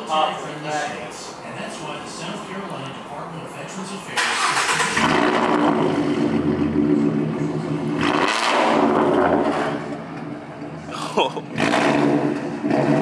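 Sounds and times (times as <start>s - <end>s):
car engine revving and idling: 3.8s - 13.0s.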